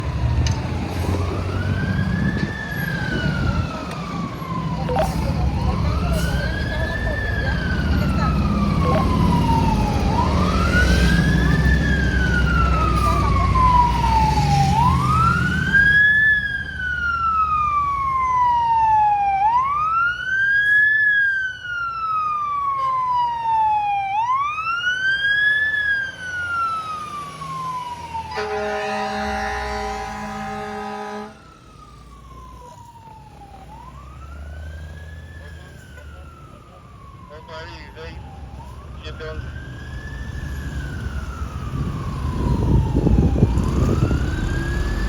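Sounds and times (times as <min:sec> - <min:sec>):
fire truck siren wailing: 0:00.0 - 0:45.0
truck horn blast: 0:28.3 - 0:31.4.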